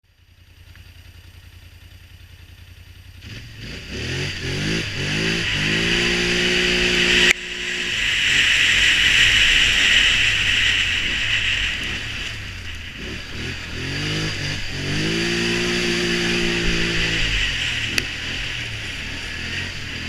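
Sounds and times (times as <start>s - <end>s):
quad bike engine revving: 3.1s - 20.0s
strong hiss: 5.3s - 19.4s.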